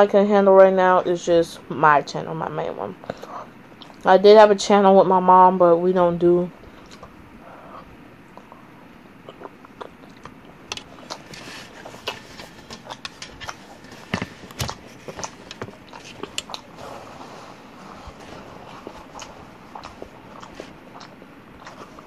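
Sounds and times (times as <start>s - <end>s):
person chewing with wet smacks: 3.0s - 4.0s, 6.7s - 7.2s, 7.8s - 16.8s, 17.8s - 22.0s.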